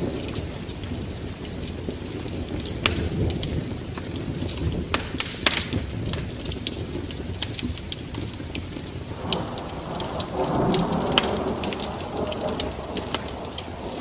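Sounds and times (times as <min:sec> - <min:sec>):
fire popping: 0:00.0 - 0:14.0
low steady fire rumble: 0:00.0 - 0:14.0
wood fire crackling: 0:00.0 - 0:14.0.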